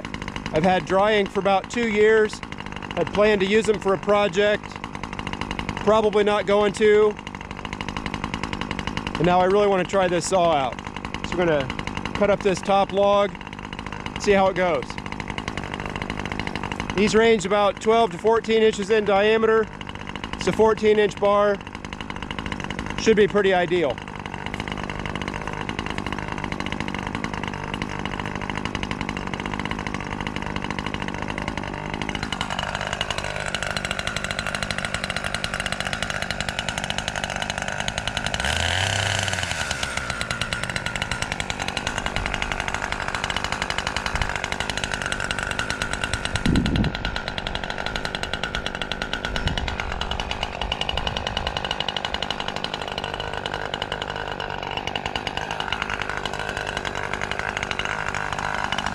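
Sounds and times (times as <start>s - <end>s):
chainsaw cutting log: 0.0s - 58.9s.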